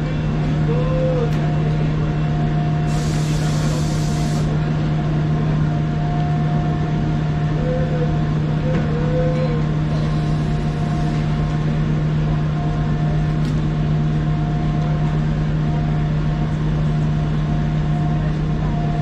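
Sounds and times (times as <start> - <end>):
train low hum: 0.0 - 19.0.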